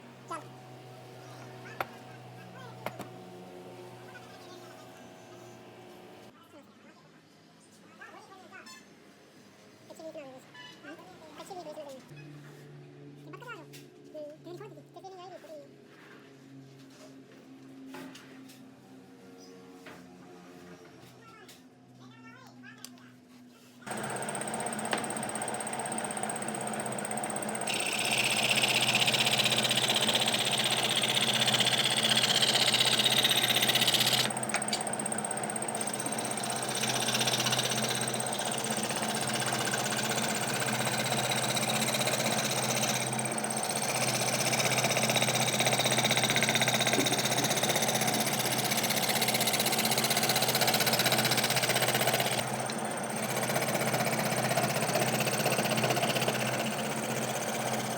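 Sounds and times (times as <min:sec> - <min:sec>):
electric carving tool grinding wood: 0:00.0 - 0:06.3, 0:23.9 - 0:57.9.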